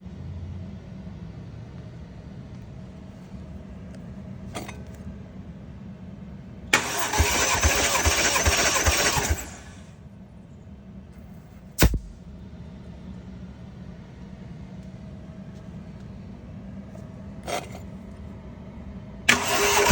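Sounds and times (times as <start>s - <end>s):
engine cranking on starter motor: 6.7s - 9.9s, 19.3s - 19.9s
sharp thump: 11.8s - 12.4s.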